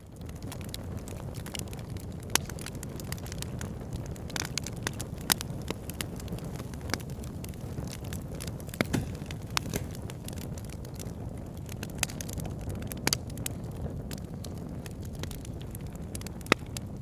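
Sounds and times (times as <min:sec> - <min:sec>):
fire crackling and popping: 0:00.0 - 0:17.0
fire rumbling: 0:00.0 - 0:17.0.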